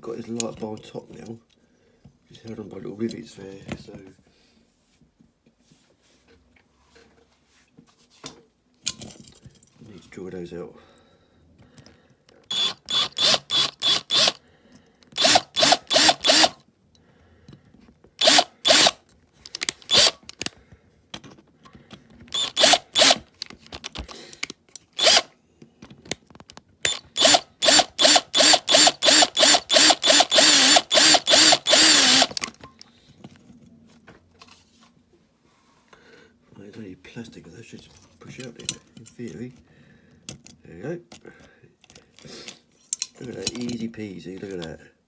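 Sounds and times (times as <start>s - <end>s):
power drill pulses: 12.5s - 14.4s, 15.2s - 16.6s, 18.2s - 19.0s, 19.8s - 20.2s, 22.3s - 23.2s, 25.0s - 25.3s, 26.9s - 32.4s.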